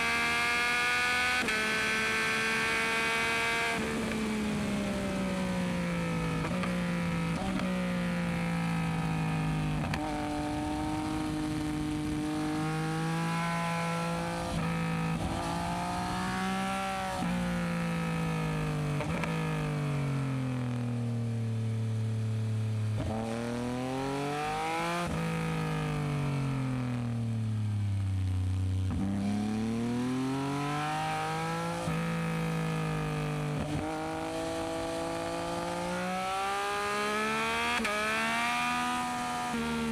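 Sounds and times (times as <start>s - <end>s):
motorcycle engine revving: 0.0s - 19.7s, 28.0s - 39.9s.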